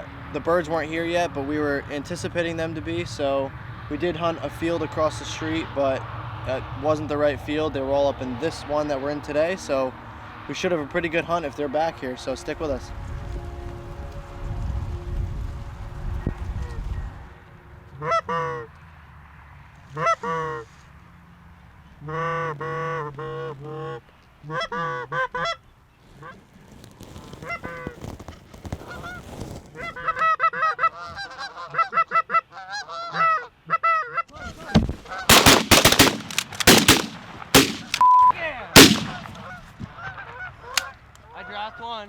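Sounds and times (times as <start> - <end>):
shotgun blasts: 35.3 - 38.0, 38.8 - 39.8
geese honking: 38.8 - 42.0.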